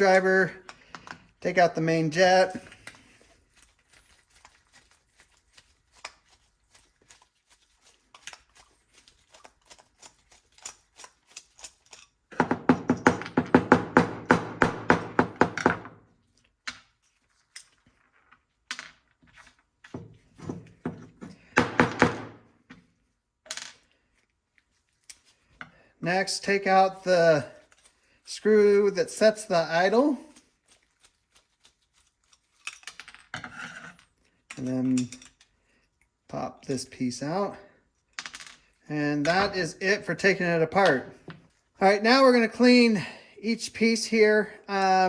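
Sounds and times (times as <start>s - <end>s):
metal parts clicking and tapping: 32.5s - 35.5s.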